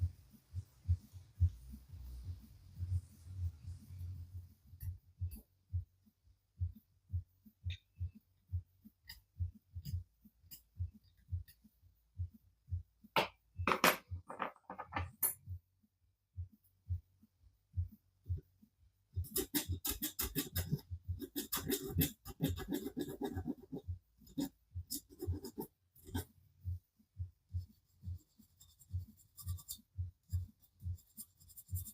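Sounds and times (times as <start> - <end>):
metal file rasping on metal: 19.2 - 26.3.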